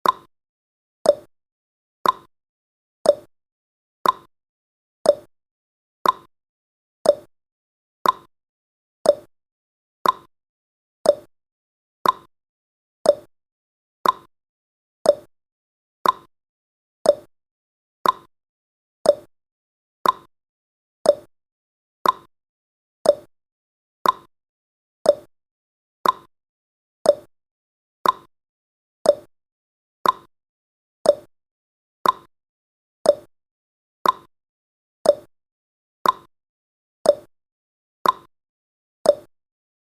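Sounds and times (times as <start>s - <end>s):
timer ticking: 0.0s - 0.3s, 1.0s - 1.3s, 2.0s - 2.3s, 3.0s - 3.3s, 4.0s - 4.3s, 5.1s - 5.3s, 6.0s - 6.3s, 7.0s - 7.3s, 8.0s - 8.3s, 9.0s - 9.3s, 10.0s - 10.3s, 11.0s - 11.3s, 12.0s - 12.3s, 13.0s - 13.3s, 14.0s - 14.3s, 15.0s - 15.3s, 16.0s - 16.3s, 17.0s - 17.3s, 18.0s - 18.3s, 19.0s - 19.3s, 20.0s - 20.3s, 21.0s - 21.3s, 22.0s - 22.3s, 23.0s - 23.3s, 24.0s - 24.3s, 25.0s - 25.3s, 26.0s - 26.3s, 27.0s - 27.3s, 28.0s - 28.3s, 29.0s - 29.3s, 30.0s - 30.3s, 31.0s - 31.3s, 32.0s - 32.3s, 33.0s - 33.3s, 34.0s - 34.3s, 35.0s - 35.3s, 36.0s - 36.3s, 37.0s - 37.3s, 38.0s - 38.3s, 39.1s - 39.3s.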